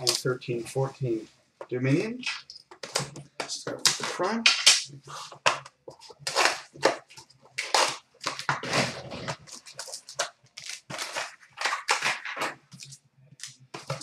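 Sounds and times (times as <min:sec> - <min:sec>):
packaging crinkling and rustling: 0:05.1 - 0:14.0.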